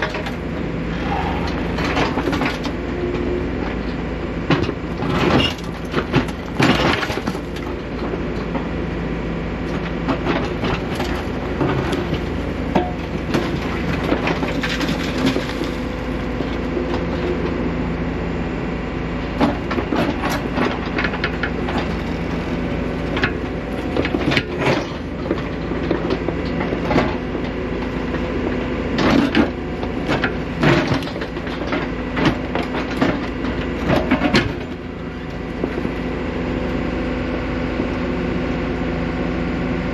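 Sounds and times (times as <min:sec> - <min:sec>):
excavator diesel engine running: 0:00.0 - 0:39.9
bucket scraping rock and gravel: 0:10.4 - 0:16.7.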